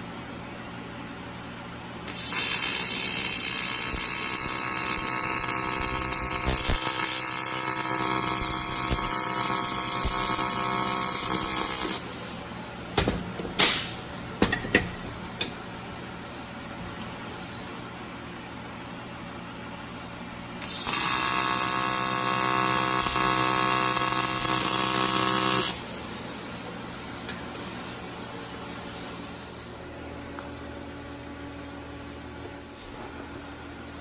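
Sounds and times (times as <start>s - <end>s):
welding arc buzzing hiss: 2.1s - 17.9s, 20.6s - 29.9s.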